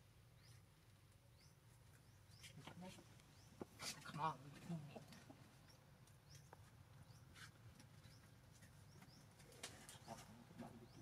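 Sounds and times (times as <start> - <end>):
faint bird chirps: 0.3 - 0.7.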